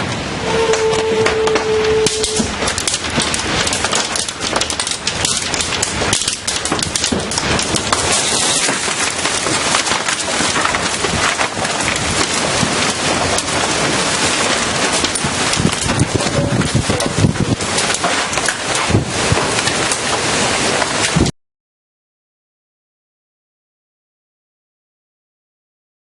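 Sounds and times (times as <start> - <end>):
wind and driving rain rushing: 0.0 - 21.3
debris cracking and clattering: 0.6 - 21.3.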